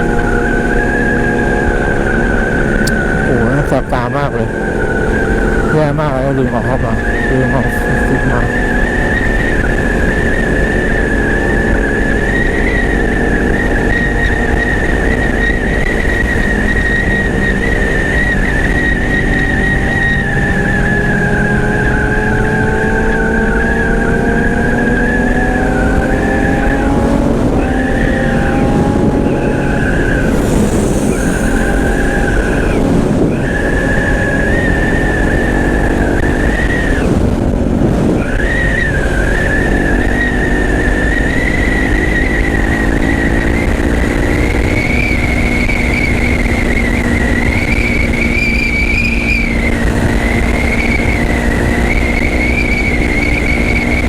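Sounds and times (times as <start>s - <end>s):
wind rush on microphone: 0.0s - 54.0s.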